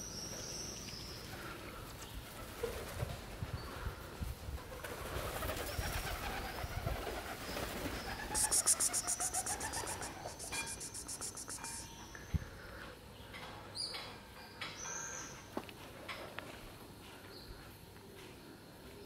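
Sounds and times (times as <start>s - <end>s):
bird cooing: 8.3s - 11.8s
high pulsed bird trill: 8.3s - 12.2s.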